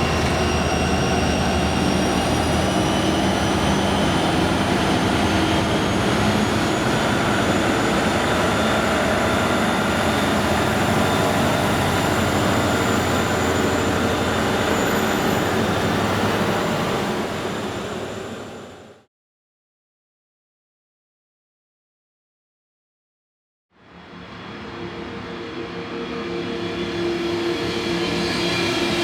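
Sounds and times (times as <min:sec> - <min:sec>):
diesel locomotive engines: 0:00.0 - 0:19.0
rail noise: 0:00.0 - 0:19.0.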